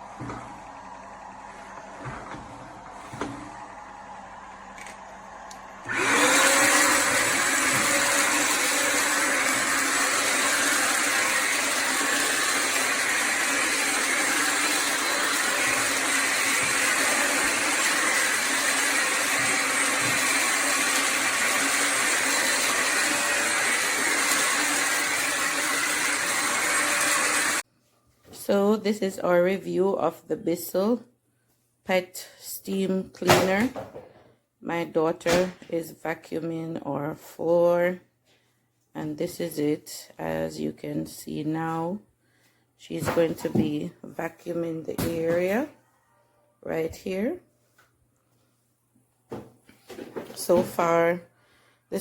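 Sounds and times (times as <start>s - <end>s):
vacuum motor whining: 0.0s - 27.6s.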